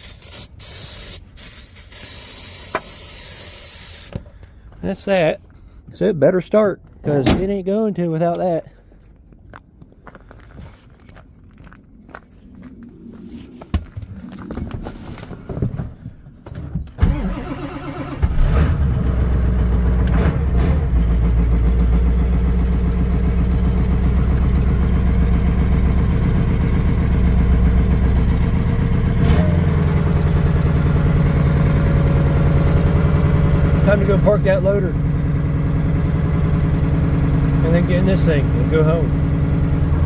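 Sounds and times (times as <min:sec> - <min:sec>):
diesel engine cranking: 0:14.7 - 0:40.0
diesel engine idling: 0:20.7 - 0:40.0.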